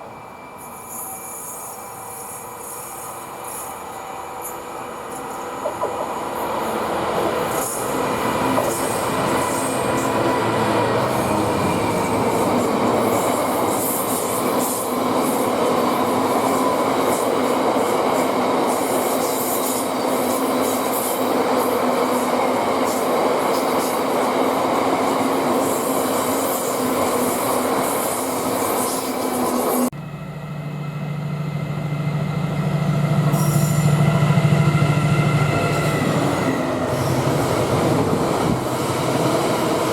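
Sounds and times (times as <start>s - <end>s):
train wheels rumbling on rails: 0.7s - 39.9s
high wheel squeal: 33.3s - 34.2s.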